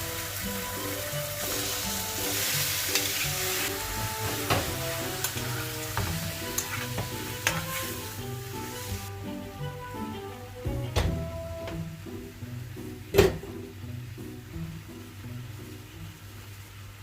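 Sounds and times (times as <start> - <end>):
food sizzling in a frying pan: 0.0 - 9.6
utensil knocking against pan: 6.0 - 7.6.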